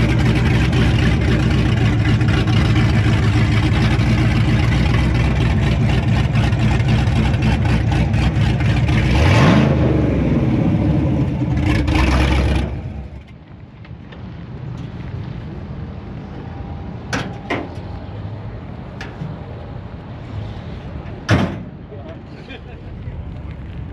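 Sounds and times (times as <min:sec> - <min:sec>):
truck engine revving: 0:00.0 - 0:13.4.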